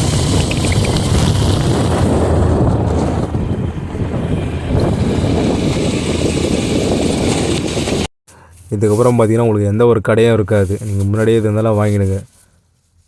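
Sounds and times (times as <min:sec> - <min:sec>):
motorcycle rumble on dirt road: 0:00.0 - 0:08.1
wind buffeting microphone: 0:00.0 - 0:08.1.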